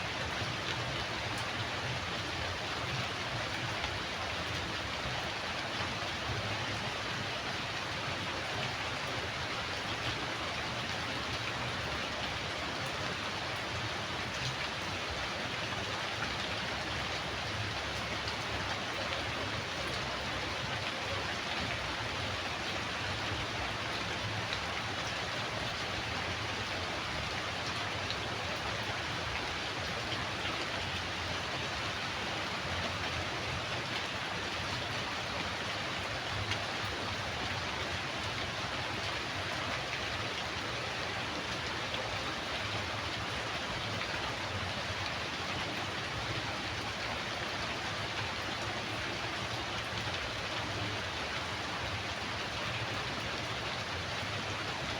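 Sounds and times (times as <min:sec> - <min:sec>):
rain pattering: 0:00.0 - 0:54.9.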